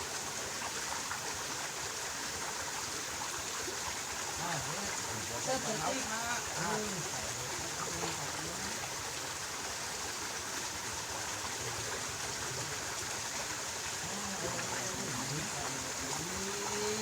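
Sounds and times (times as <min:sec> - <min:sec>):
stream water rushing: 0:00.0 - 0:17.0
faint voice: 0:04.4 - 0:08.9, 0:13.9 - 0:17.0.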